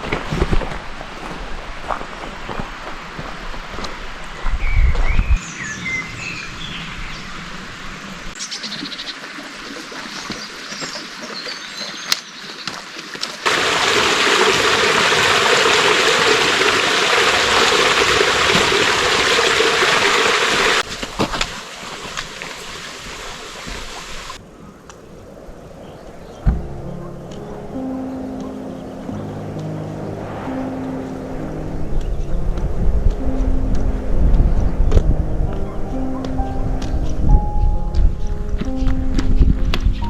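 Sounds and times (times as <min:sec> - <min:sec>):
birds chirping: 0:04.6 - 0:07.5, 0:08.4 - 0:17.4, 0:22.4 - 0:32.5, 0:34.5 - 0:40.0
small stream running: 0:05.6 - 0:26.5
loud rush of water: 0:13.4 - 0:24.4.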